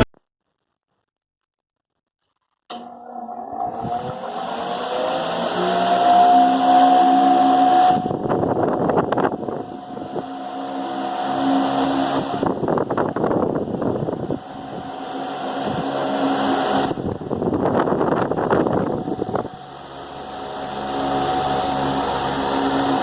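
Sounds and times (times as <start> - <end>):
fan motor hum: 2.7 - 23.0
wind buffeting microphone: 7.5 - 23.0.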